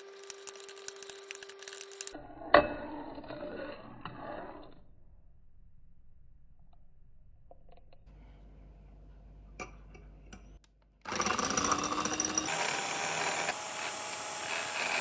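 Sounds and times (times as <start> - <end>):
electric hand mixer whirring: 11.1 - 15.0.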